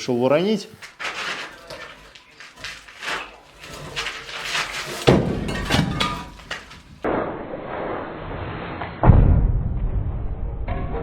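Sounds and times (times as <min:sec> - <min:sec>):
sharp knocks and blows: 0:02.6 - 0:07.4
heavy crash: 0:02.6 - 0:08.0
thud: 0:03.7 - 0:07.3.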